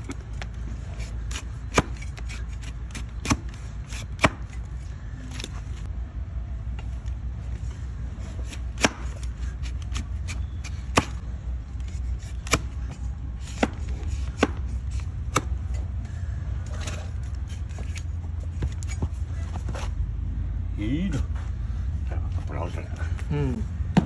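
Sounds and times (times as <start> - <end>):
blade scraping hoof: 0.0 - 5.9, 7.5 - 11.2, 11.8 - 20.0
blade cutting hoof snaps: 12.4 - 12.8.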